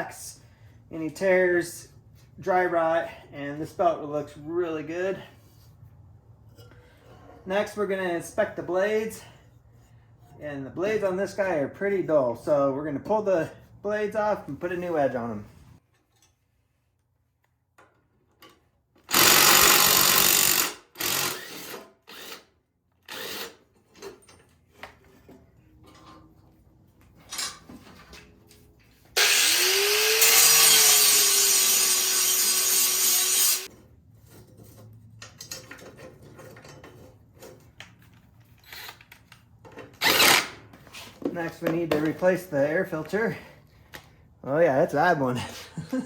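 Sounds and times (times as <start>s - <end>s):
power tool bursts: 19.1s - 22.4s, 29.2s - 33.7s, 40.0s - 40.6s
grinder whining: 29.2s - 33.7s.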